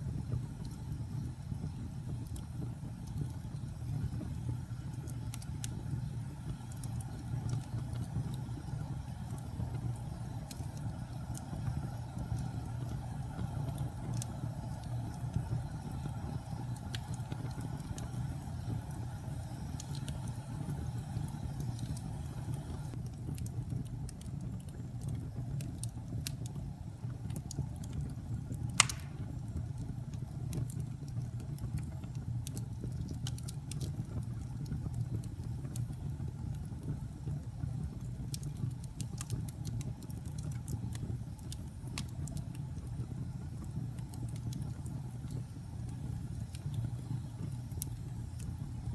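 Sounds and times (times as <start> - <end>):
fire burning with crackles: 0.0 - 48.9
loud pop of fire: 28.6 - 29.5.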